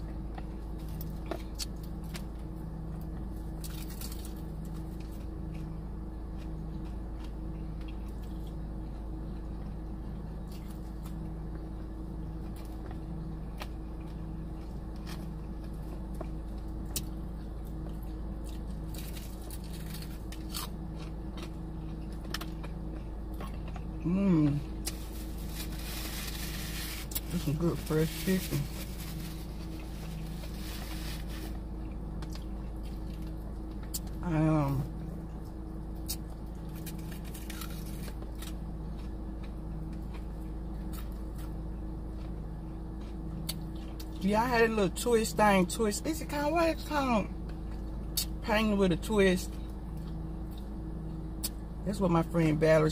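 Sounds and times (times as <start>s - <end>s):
person chewing food: 0.0s - 27.6s, 28.5s - 34.2s, 35.2s - 44.2s
low hum: 0.0s - 52.9s
person humming: 24.0s - 24.7s.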